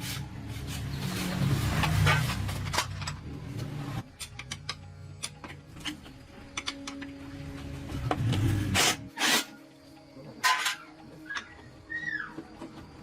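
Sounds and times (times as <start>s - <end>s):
tools scraping metal parts: 10.4s - 11.5s.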